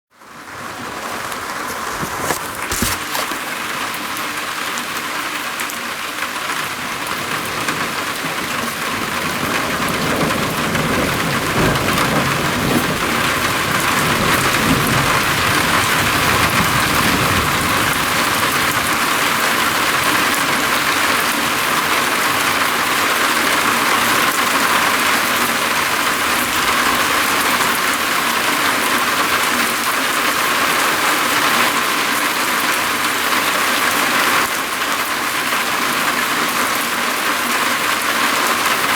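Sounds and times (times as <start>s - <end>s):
heavy rain on a roof: 0.1s - 38.9s
thunder rumble: 7.8s - 21.7s.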